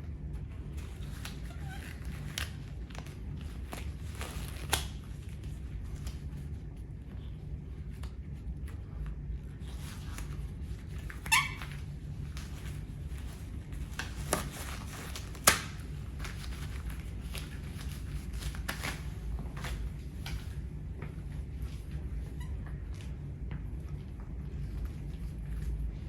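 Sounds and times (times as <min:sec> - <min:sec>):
steady low hum: 0:00.0 - 0:26.0
short squeak: 0:11.3 - 0:11.7
plastic snapping: 0:15.1 - 0:15.8.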